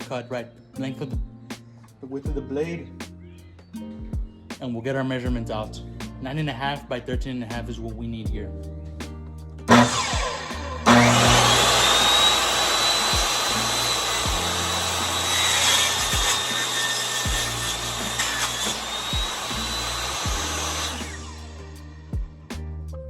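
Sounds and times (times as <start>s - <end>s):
table saw blade whine: 9.7s - 21.7s
saw winding down: 9.7s - 22.0s.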